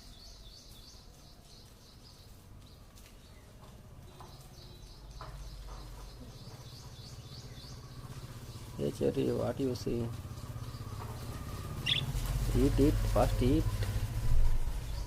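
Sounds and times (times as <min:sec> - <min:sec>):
bird chirps: 0:04.1 - 0:13.0
rapid high chirping: 0:10.4 - 0:12.3.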